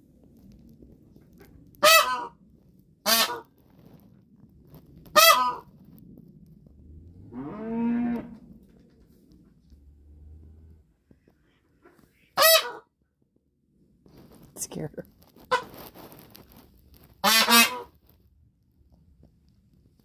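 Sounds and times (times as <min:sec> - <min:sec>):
goose honking: 0:01.8 - 0:02.3, 0:03.1 - 0:03.4, 0:05.2 - 0:05.6, 0:17.2 - 0:17.9.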